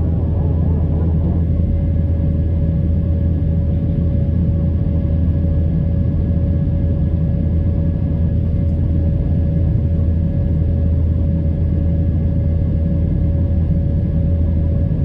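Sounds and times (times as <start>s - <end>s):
thin engine whine: 0.0s - 3.6s
airliner cabin engine rumble: 0.0s - 15.0s.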